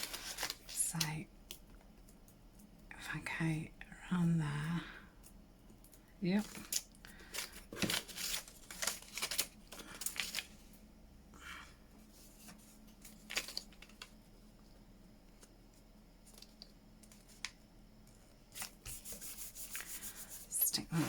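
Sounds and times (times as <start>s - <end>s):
paper rustling: 0.0s - 0.8s, 6.4s - 10.6s, 12.2s - 14.1s.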